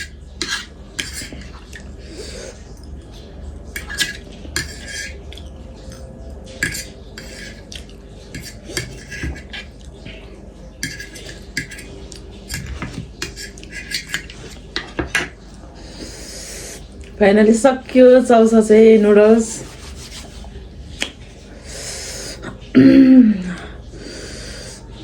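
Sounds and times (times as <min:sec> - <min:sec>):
cutlery scraping a dish: 0:00.0 - 0:01.9, 0:03.7 - 0:10.2, 0:10.8 - 0:15.4.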